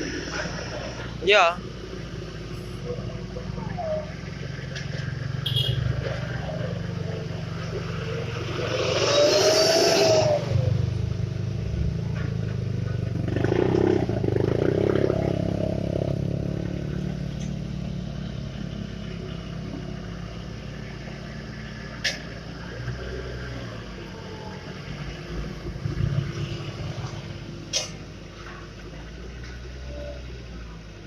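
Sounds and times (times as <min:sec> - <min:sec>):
low engine rumble: 0:00.0 - 0:31.0
vehicle passing with hiss: 0:06.0 - 0:11.9.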